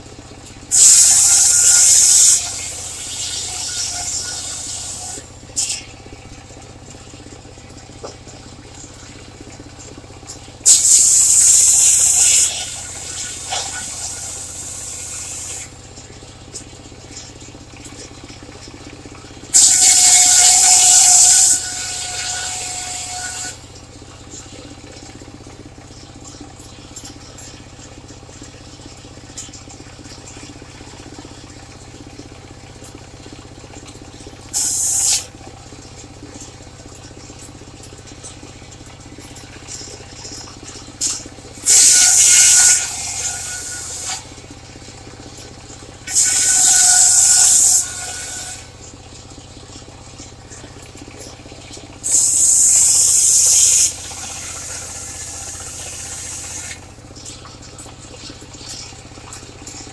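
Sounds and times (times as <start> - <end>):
circular sawmill running: 0.0 - 59.9
saw blade whining through wood: 0.7 - 5.8, 19.5 - 23.6, 41.0 - 44.3, 46.1 - 48.7, 52.0 - 56.8.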